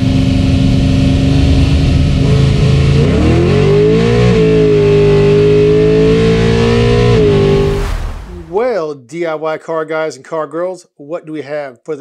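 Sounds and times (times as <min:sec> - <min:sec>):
engine accelerating hard: 0:00.0 - 0:08.6.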